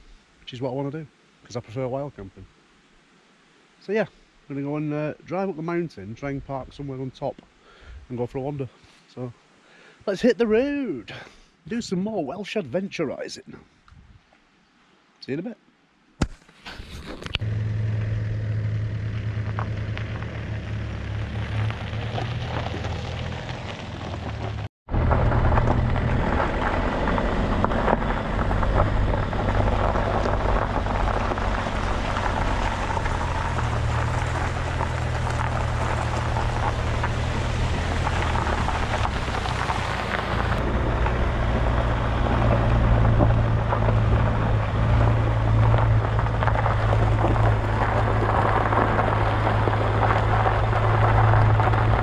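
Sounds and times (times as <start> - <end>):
road and wind noise: 6.1 - 8.4, 13.8 - 14.3, 16.7 - 52.0
van engine drone: 17.3 - 52.0.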